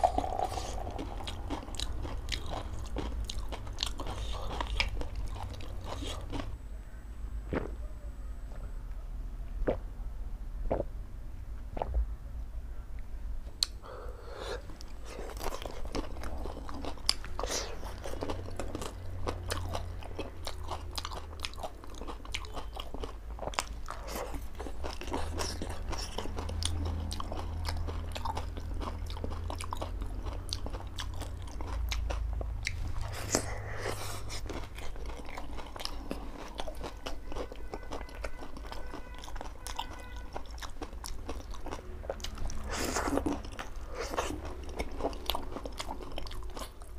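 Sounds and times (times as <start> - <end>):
crunchy chewing: 0.0 - 6.6, 14.4 - 46.9
low steady hum: 0.0 - 46.9
wet mouth clicks: 10.7 - 10.9, 13.6 - 13.8.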